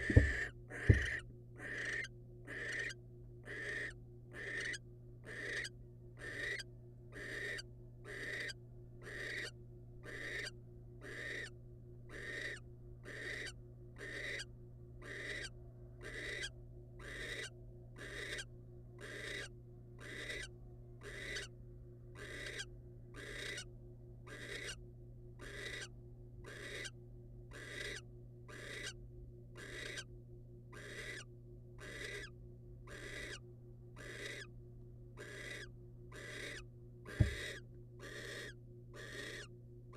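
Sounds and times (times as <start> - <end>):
barn owl hissing calls: 0.0 - 6.6, 7.2 - 11.5, 12.1 - 21.5, 22.2 - 23.7, 24.3 - 24.8, 25.4 - 25.9, 26.5 - 26.9, 27.5 - 29.0, 29.6 - 30.1, 30.8 - 32.3, 32.9 - 33.4, 34.0 - 34.5, 35.2 - 39.5
low electrical hum: 0.0 - 39.9.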